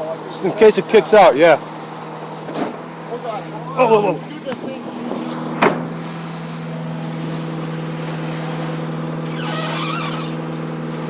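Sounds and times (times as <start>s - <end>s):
garbage truck packer hum: 0.0s - 11.0s
wavering plastic creak: 8.3s - 10.6s.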